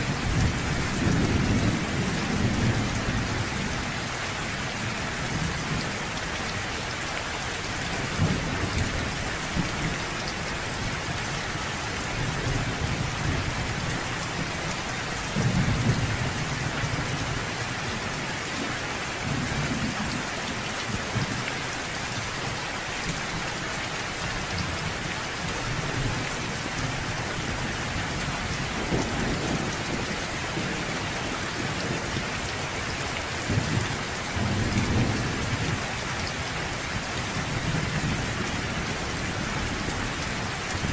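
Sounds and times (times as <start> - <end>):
low thunder rumbling: 0.0 - 4.2, 7.9 - 9.9, 24.5 - 32.4
steady rain falling: 0.0 - 40.9.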